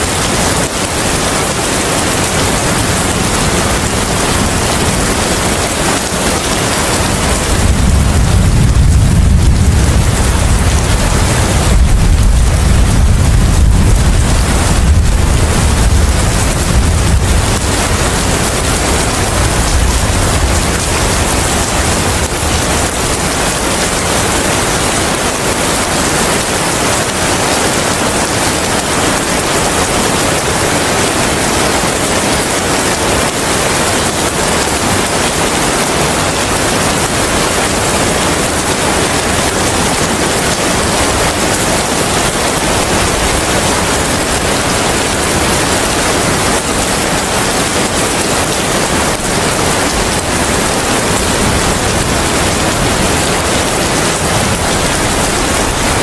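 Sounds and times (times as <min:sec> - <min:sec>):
heavy rain: 0:00.0 - 0:56.0
wind: 0:00.0 - 0:56.0
low rumble: 0:07.5 - 0:18.6.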